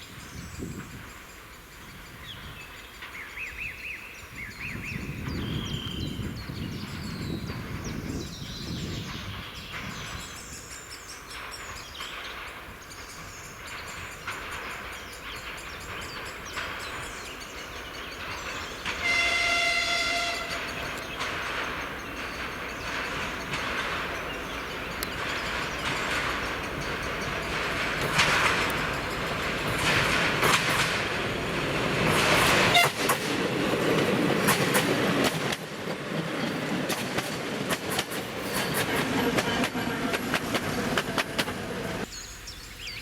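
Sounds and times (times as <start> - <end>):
birds chirping: 0.0 - 43.0
diesel train moving: 0.1 - 42.5
train horn blast: 18.9 - 20.8, 32.6 - 33.3.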